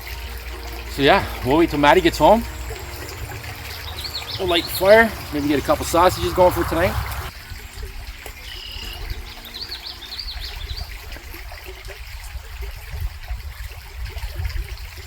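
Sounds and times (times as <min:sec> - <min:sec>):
stream trickling: 0:00.0 - 0:15.0
bird chirping: 0:00.9 - 0:07.3.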